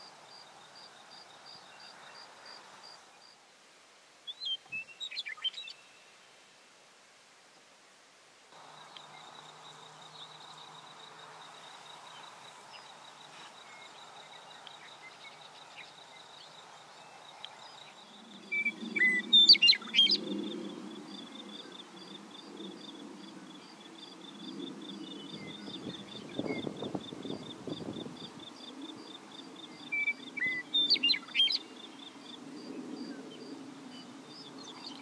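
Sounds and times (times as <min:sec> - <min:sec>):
sharp sweeping bird calls: 0:08.6 - 0:23.9, 0:29.6 - 0:32.4.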